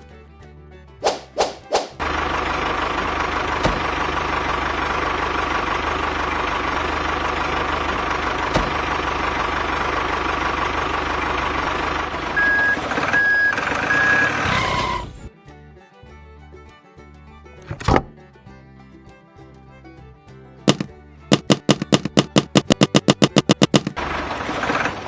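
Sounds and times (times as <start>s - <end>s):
truck engine running: 1.6s - 25.0s
reversing beeps: 12.4s - 15.2s
sharp clicks: 20.6s - 24.0s.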